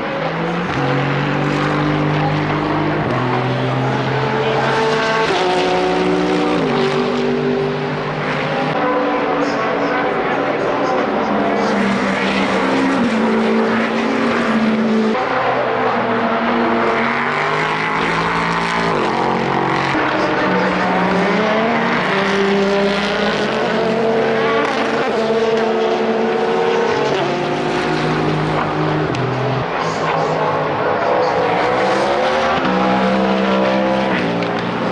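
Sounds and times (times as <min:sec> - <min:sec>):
racing car engines revving: 0:00.0 - 0:34.9.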